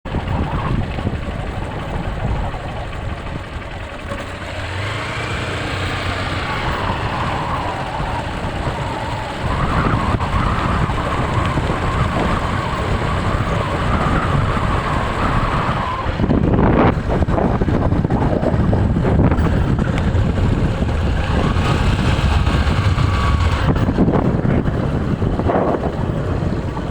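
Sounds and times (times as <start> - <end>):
wavering whine: 0.1 - 26.9.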